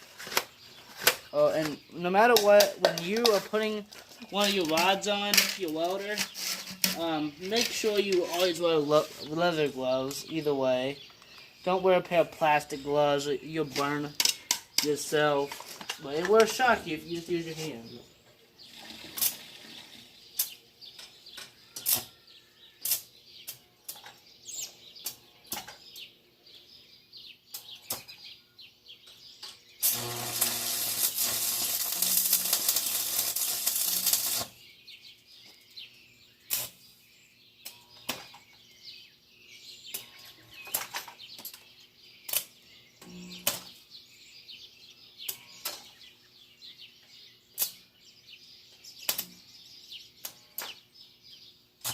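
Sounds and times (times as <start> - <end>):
welding rod taps and scratches: 0.3 - 8.3, 29.8 - 34.5
welding arc crackling hiss: 29.8 - 34.6.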